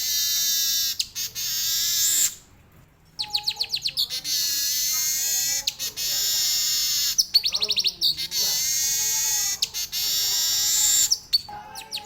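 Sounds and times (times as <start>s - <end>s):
bird singing buzzy warbling song: 3.2s - 12.0s.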